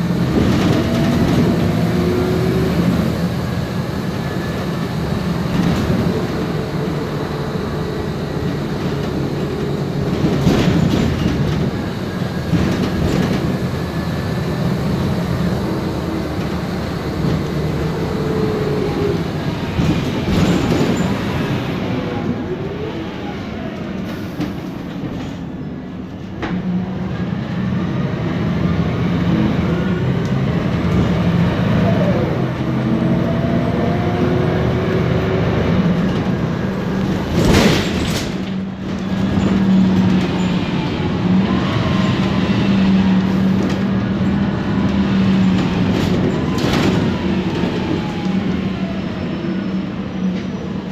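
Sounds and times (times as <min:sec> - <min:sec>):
bus engine droning: 0:00.0 - 0:50.9.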